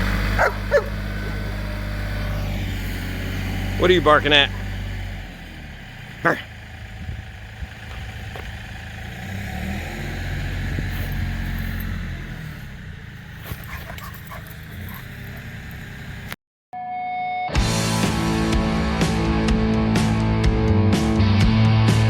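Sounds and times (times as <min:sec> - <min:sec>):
low engine rumble: 0:00.0 - 0:16.4
dog barking: 0:00.4 - 0:01.4, 0:04.4 - 0:04.8, 0:06.2 - 0:06.5, 0:13.5 - 0:15.4.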